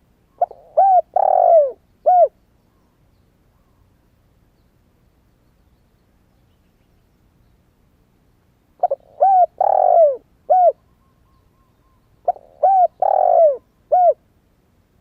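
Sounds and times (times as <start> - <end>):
dove cooing: 0.4 - 2.4, 8.8 - 10.8, 12.2 - 14.2.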